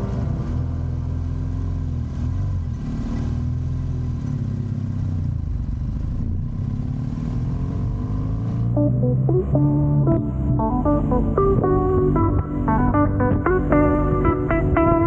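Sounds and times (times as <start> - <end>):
guitar music: 0.0 - 1.3, 8.8 - 15.0
motorcycle engine running: 3.6 - 7.0.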